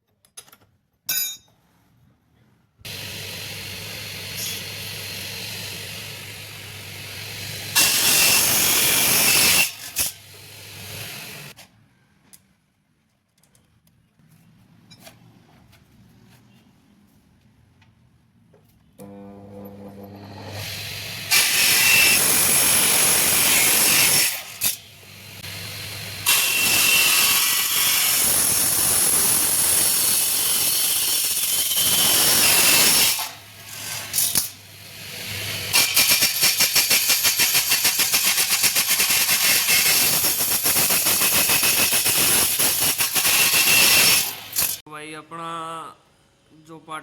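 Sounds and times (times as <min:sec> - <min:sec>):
electric saw motor: 0:02.9 - 0:11.6
saw screeching through metal: 0:04.3 - 0:11.6, 0:20.2 - 0:24.9, 0:25.5 - 0:34.4, 0:35.7 - 0:44.8.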